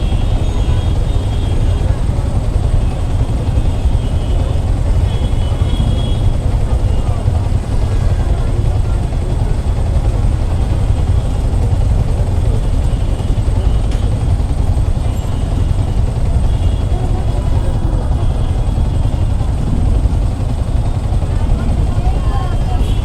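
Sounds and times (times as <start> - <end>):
road traffic rumble: 0.0 - 23.0
microphone wind buffeting: 11.5 - 23.0.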